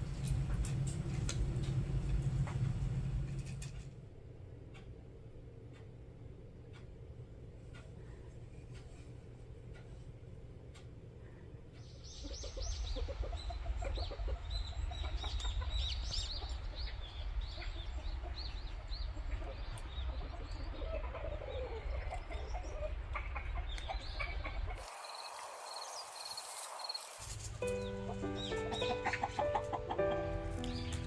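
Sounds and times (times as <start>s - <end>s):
low steady rumble: 0.0s - 19.9s
chickens clucking and calling: 11.7s - 31.0s.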